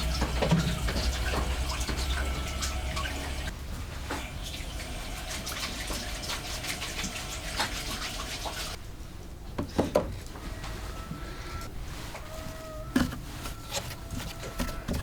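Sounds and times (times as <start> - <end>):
low hum: 0.0 - 5.3
water running and splashing: 0.0 - 8.8.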